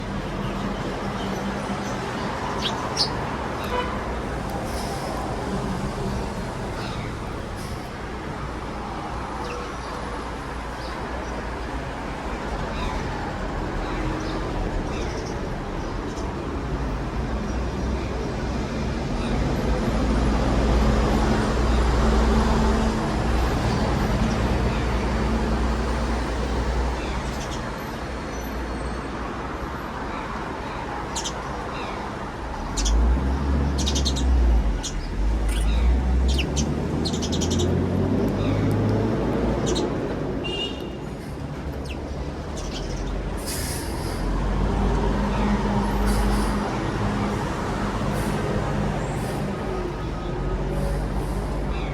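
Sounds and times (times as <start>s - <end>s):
small birds chirping: 0.0s - 7.8s, 23.6s - 27.8s, 30.1s - 43.5s
road traffic rumble: 0.0s - 51.9s
vehicle passing: 32.4s - 40.4s.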